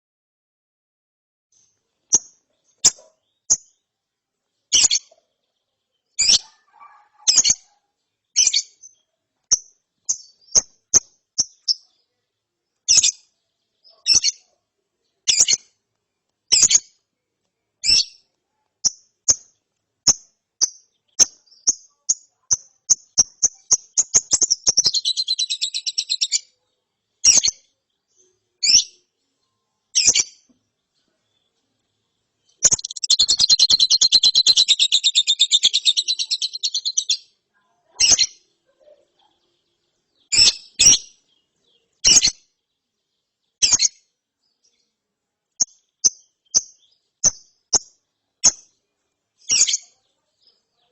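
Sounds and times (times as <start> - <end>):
lovebird chirping: 1.6 - 3.9, 4.6 - 15.8, 16.4 - 17.1, 17.7 - 45.0, 45.6 - 50.9
buzzy chattering trill: 32.6 - 37.0.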